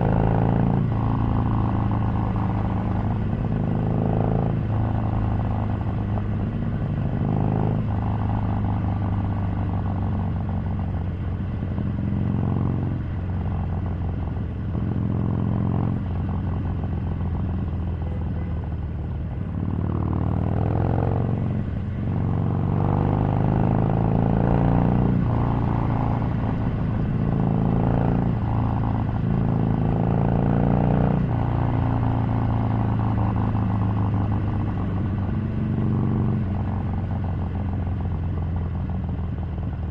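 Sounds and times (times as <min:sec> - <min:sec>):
motorcycle engine revving: 0:19.0 - 0:38.5.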